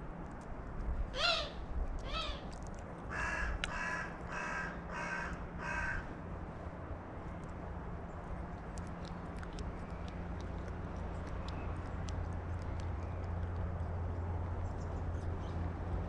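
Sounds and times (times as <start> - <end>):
crow calls sweeping in pitch: 1.2 - 2.4
crow cawing: 1.2 - 2.4, 3.1 - 6.1.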